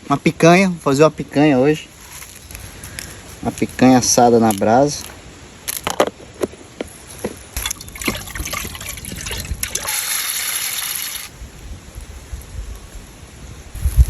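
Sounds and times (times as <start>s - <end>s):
pouring hissing trickle: 6.9s - 14.0s.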